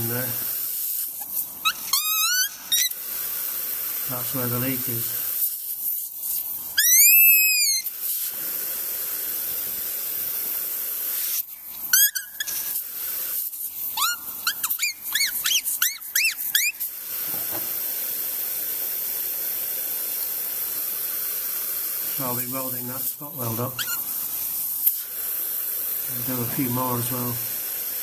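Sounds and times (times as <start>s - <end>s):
steady high hiss: 0.0s - 28.0s
high squeaky chirps: 1.6s - 3.0s, 6.8s - 7.9s, 11.9s - 12.6s, 13.9s - 16.9s, 23.8s - 24.1s.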